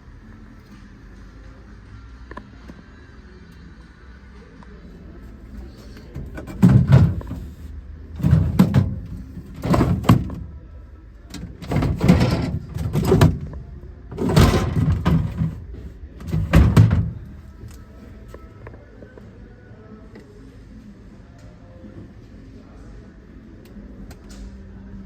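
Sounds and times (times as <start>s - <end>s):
fridge doors and drawers thudding: 6.0s - 10.6s, 11.3s - 17.7s.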